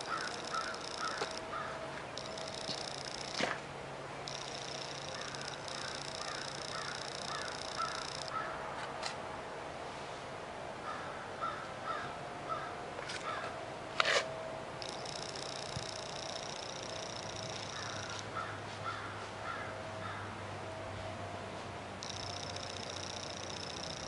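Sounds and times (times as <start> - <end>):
birds calling: 0.0 - 3.4, 4.2 - 8.6, 14.8 - 20.3
high buzzy bird trill: 0.0 - 3.5, 4.2 - 8.6, 14.8 - 20.2, 22.0 - 24.0.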